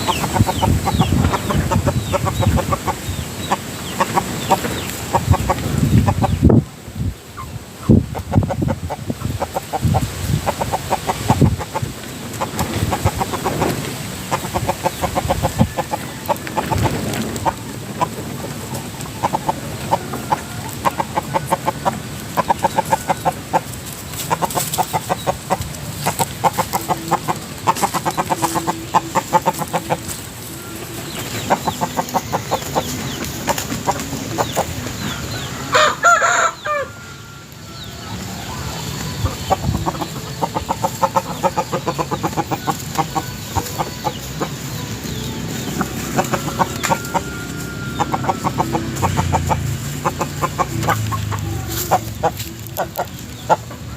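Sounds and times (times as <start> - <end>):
rooster clucking: 0.0 - 6.8, 7.4 - 53.9
loud rooster call: 35.5 - 37.7.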